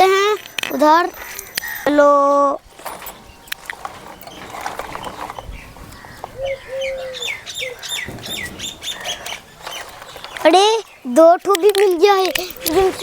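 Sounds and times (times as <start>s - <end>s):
small bird chirping: 0.5s - 13.0s
low whistled bird notes: 2.7s - 11.0s
faint clicks: 7.2s - 13.0s.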